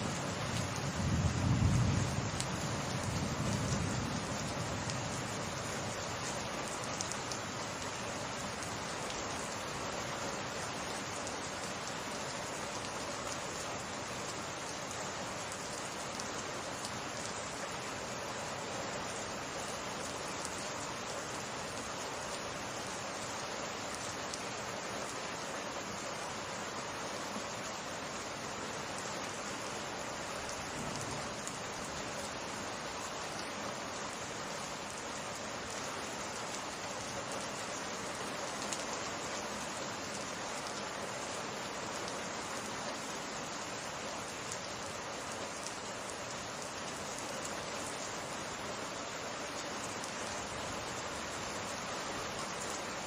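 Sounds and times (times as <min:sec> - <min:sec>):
steady rain pouring: 0:00.0 - 0:53.0
low rumble of thunder: 0:00.8 - 0:05.2.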